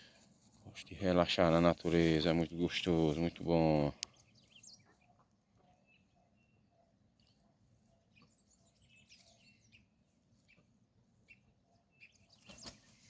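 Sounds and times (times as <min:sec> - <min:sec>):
faint bird chirps: 0:02.8 - 0:13.0.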